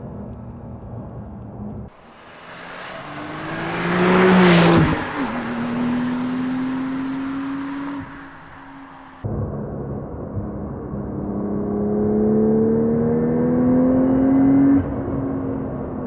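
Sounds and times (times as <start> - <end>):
sports car passing by: 1.9 - 9.3, 11.2 - 16.0.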